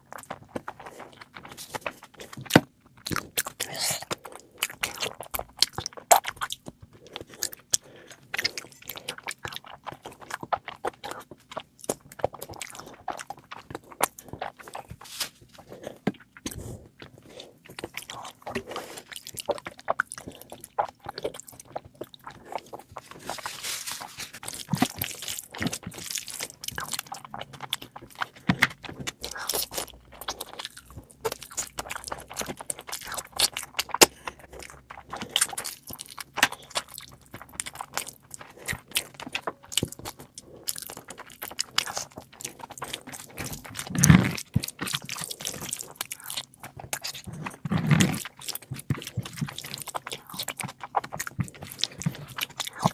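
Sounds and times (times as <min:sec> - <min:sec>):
person chewing and crunching food: 0:00.0 - 0:52.9.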